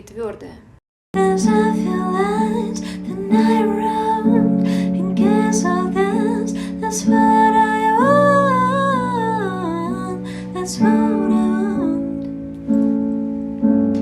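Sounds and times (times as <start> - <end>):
person singing: 1.2 - 12.3.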